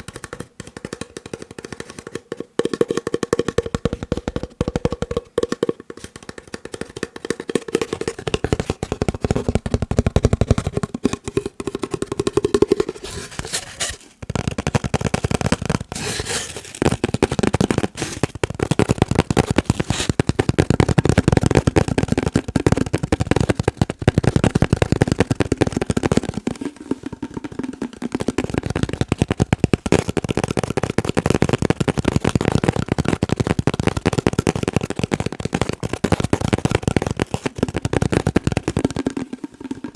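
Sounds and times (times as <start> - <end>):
fast tapping on paper: 0.0 - 39.9.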